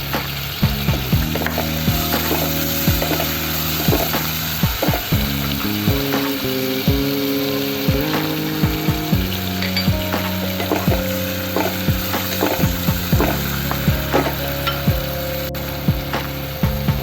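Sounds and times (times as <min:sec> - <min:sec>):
sauce sizzling in a pan: 0:00.0 - 0:16.9
background music with kick drums: 0:00.0 - 0:17.0.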